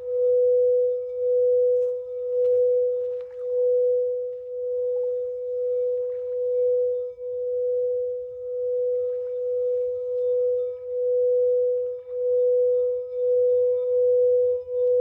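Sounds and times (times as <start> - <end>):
singing bowl tone: 0.0 - 15.0.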